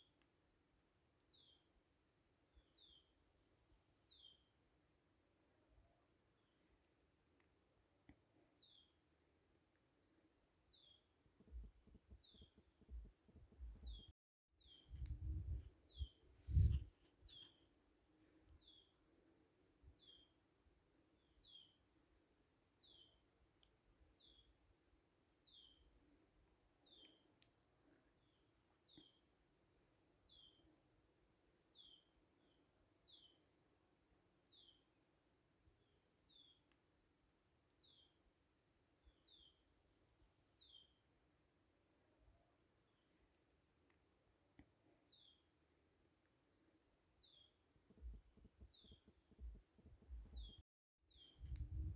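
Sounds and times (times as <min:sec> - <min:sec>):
faint low hum: 0:51.2 - 0:51.9.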